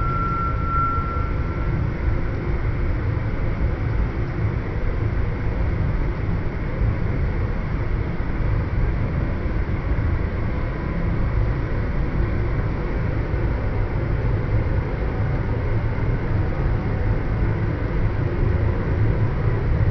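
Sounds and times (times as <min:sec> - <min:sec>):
moving train rumble: 0:00.0 - 0:05.3.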